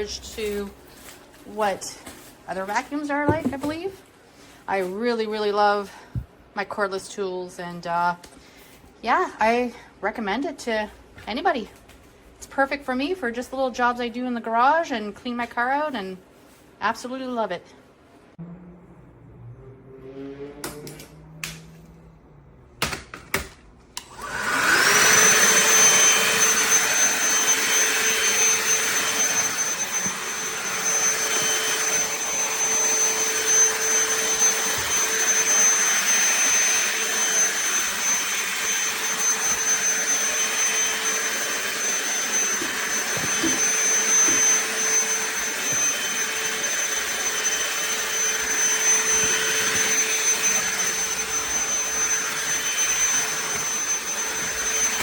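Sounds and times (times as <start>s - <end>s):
handheld vacuum motor whining: 24.0s - 55.0s.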